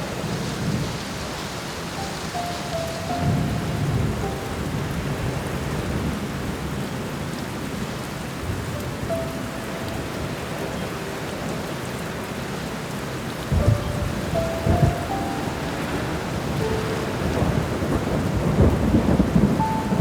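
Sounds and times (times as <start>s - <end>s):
steady rain: 0.0s - 20.0s
soft piano notes: 1.8s - 20.0s
thunder rumbling: 2.3s - 7.8s, 13.0s - 20.0s.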